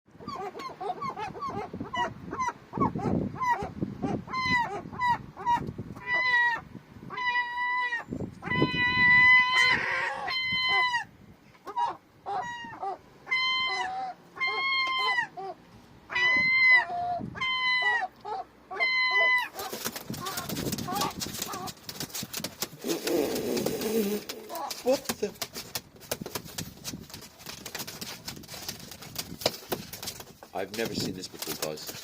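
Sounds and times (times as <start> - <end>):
seagulls yelping: 0.2 - 21.9, 22.7 - 25.0.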